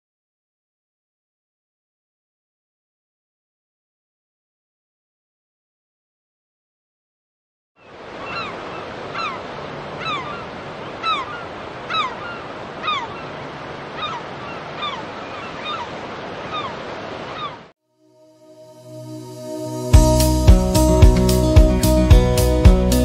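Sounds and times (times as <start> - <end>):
outdoor background rush: 7.8 - 17.7
bird short falling call: 7.9 - 17.7.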